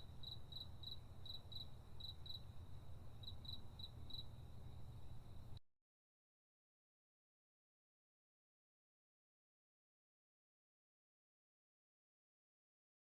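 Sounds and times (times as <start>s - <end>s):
insect chirping: 0.0s - 5.5s.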